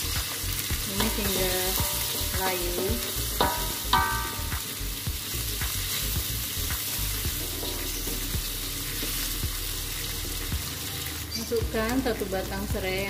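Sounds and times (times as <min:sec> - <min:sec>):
vegetables sizzling in hot oil: 0:00.0 - 0:13.0
spatula scraping and tapping wok: 0:00.1 - 0:04.8, 0:05.6 - 0:09.3.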